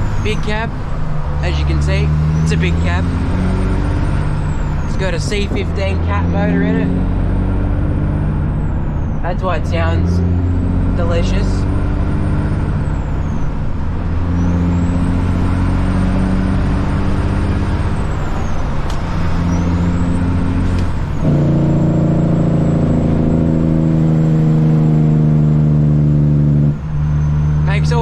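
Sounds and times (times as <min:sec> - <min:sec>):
diesel truck engine under load: 0:00.0 - 0:28.0.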